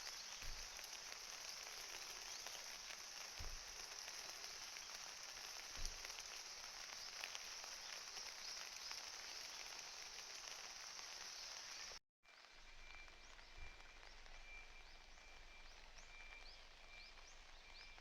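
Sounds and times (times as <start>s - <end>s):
rain patter: 0.0s - 18.0s.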